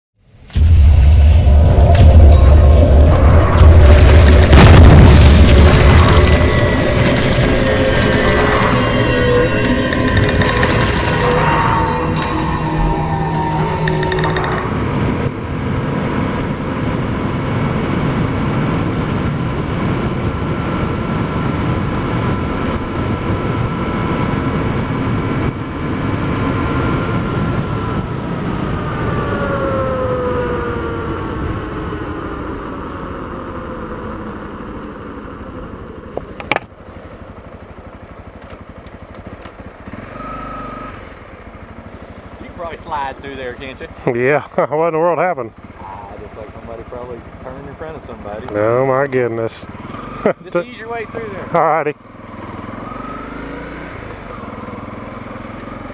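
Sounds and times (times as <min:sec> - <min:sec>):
motorcycle engine running: 0:31.8 - 0:50.3.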